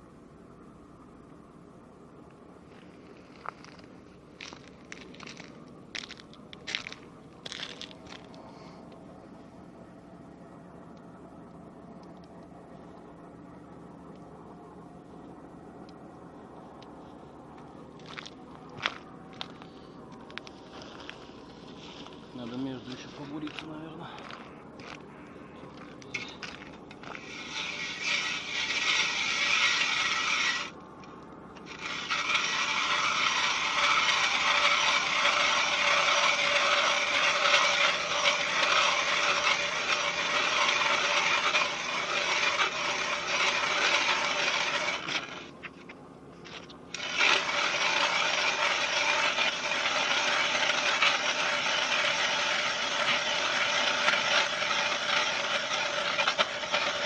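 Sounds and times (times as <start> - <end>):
ice auger grinding: 2.7 - 8.8, 18.0 - 30.8, 31.6 - 45.8, 46.4 - 57.0.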